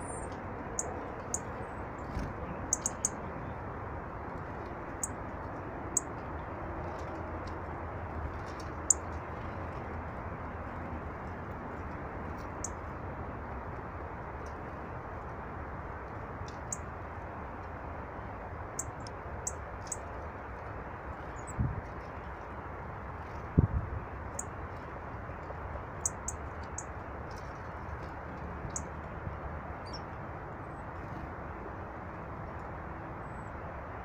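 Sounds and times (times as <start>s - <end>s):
small birds calling: 0.0s - 3.2s, 26.0s - 26.9s.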